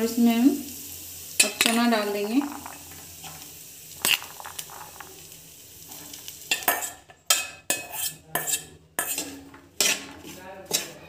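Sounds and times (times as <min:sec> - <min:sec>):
dal sizzling in hot oil: 0:00.0 - 0:11.0
metal spoon scraping steel bowl: 0:05.9 - 0:11.0.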